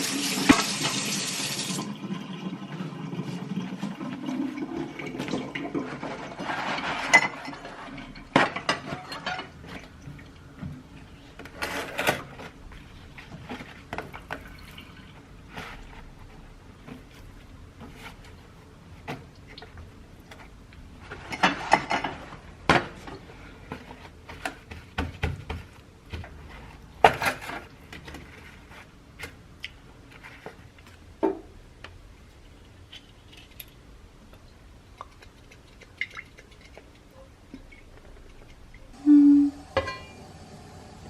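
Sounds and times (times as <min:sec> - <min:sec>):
crockery and cutlery clattering: 0:05.8 - 0:09.6, 0:39.8 - 0:40.2.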